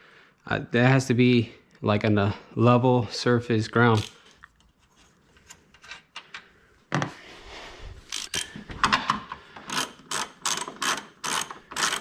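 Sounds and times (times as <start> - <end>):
socket ratchet clicking: 8.1 - 8.5, 9.7 - 12.0.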